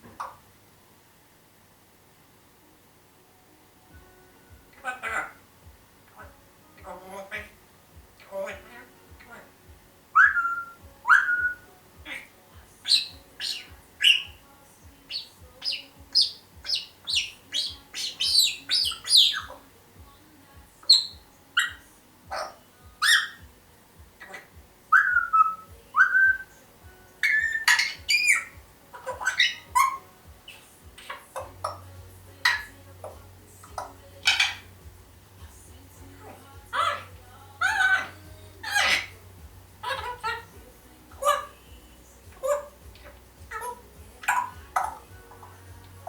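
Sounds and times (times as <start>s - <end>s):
parrot chirping and squawking: 10.2s - 14.4s, 15.1s - 19.6s, 20.8s - 23.4s, 24.2s - 26.4s, 27.2s - 32.7s, 33.7s - 34.7s, 36.7s - 39.2s, 39.8s - 40.5s, 41.2s - 41.6s, 42.3s - 45.5s.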